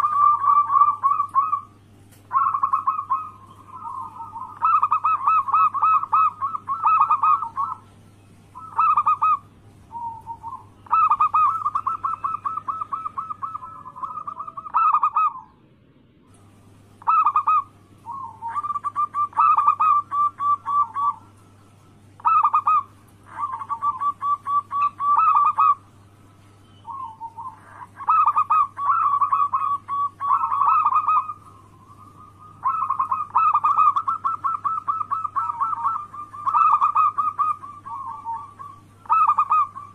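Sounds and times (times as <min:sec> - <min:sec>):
dove cooing: 0:00.0 - 0:15.6, 0:17.0 - 0:39.9
faint low hum: 0:00.0 - 0:39.9.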